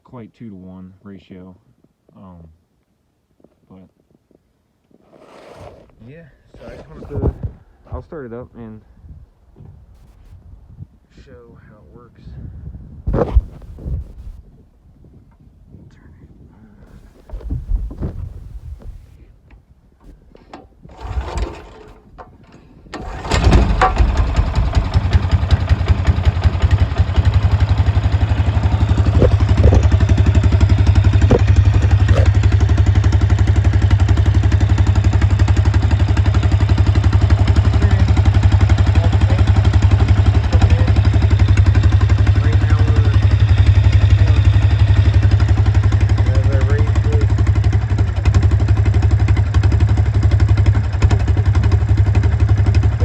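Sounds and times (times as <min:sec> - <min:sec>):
small engine running unmuffled: 0:09.6 - 0:10.4, 0:13.1 - 0:14.4, 0:16.9 - 0:19.2, 0:20.0 - 0:53.0.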